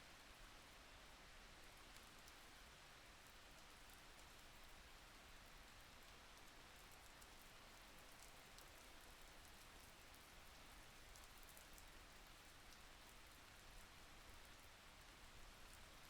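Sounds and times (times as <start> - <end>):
rain falling: 3.2 - 16.0.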